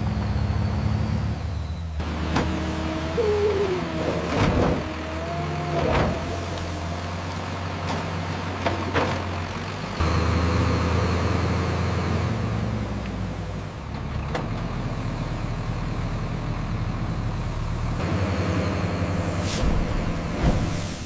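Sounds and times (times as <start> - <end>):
vehicle engine running: 0.0 - 20.7
short gliding squeak: 1.4 - 6.6.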